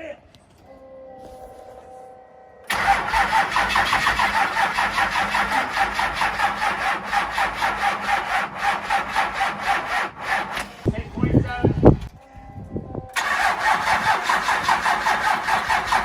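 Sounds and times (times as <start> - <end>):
engine cranking on starter: 2.7 - 11.0, 13.2 - 16.0.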